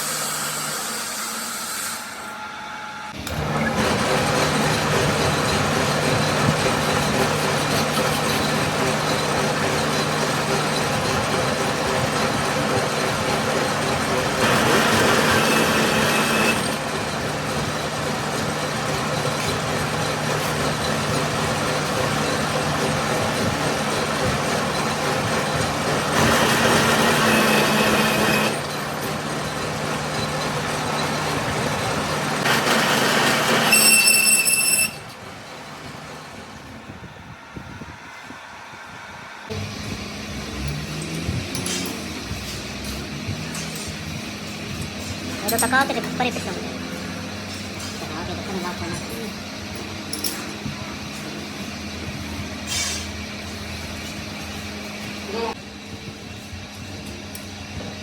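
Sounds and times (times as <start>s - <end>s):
metalworking machine humming: 0.0s - 58.0s
thin high squeal: 33.6s - 35.2s, 52.7s - 53.2s.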